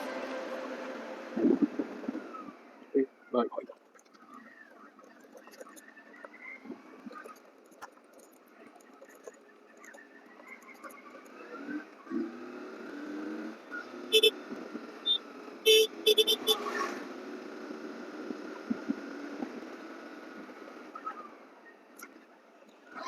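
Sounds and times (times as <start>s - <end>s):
vehicle horn honking: 0.0s - 2.0s, 14.1s - 14.4s, 15.6s - 16.8s
road traffic noise: 0.0s - 23.0s.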